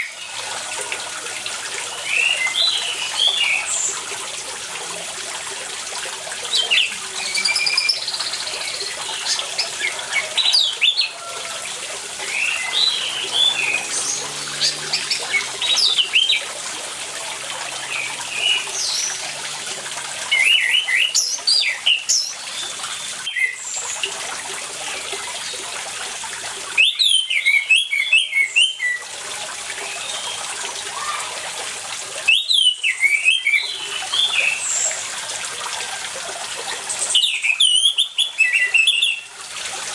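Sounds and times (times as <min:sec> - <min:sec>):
running water: 0:00.0 - 0:39.9
thrush singing: 0:09.6 - 0:19.7.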